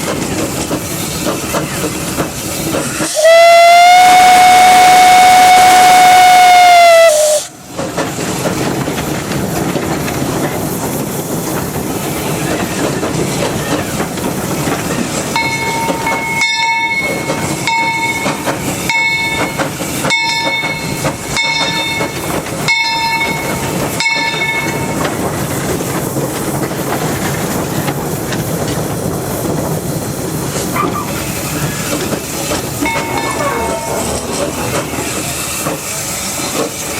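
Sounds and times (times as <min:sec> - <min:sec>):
hiss of steam: 0:00.0 - 0:36.9
train running over rails: 0:00.0 - 0:36.9
steam whistle blowing: 0:03.0 - 0:07.6
bell ringing: 0:15.4 - 0:25.0, 0:32.8 - 0:34.5.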